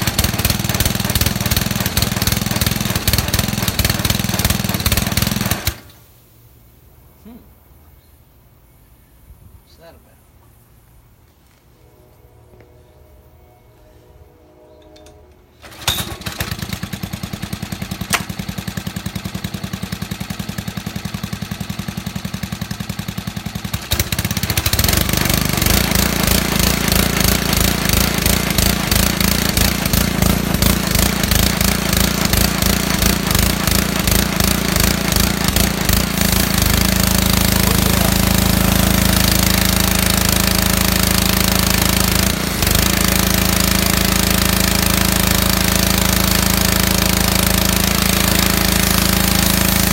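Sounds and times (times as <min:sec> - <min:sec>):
small gasoline engine pulsing: 0:00.0 - 0:05.9, 0:15.6 - 0:49.9
pressure washer hiss: 0:25.5 - 0:49.9.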